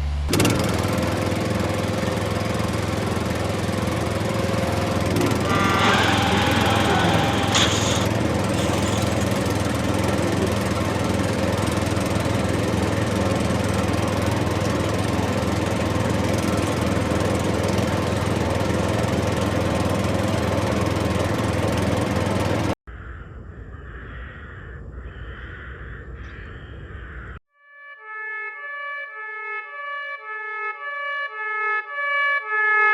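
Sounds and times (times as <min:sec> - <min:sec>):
engine droning: 0:00.0 - 0:22.8
high-pitched tone: 0:05.4 - 0:10.7.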